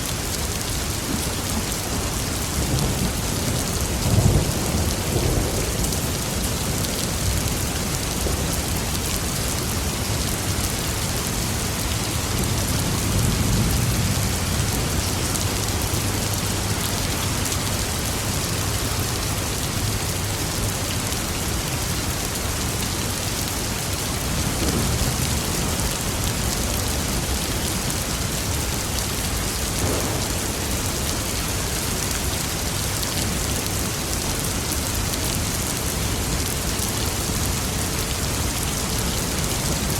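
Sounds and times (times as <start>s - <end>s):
heavy rain falling: 0.0s - 39.9s
thunder rumbling: 24.2s - 33.4s.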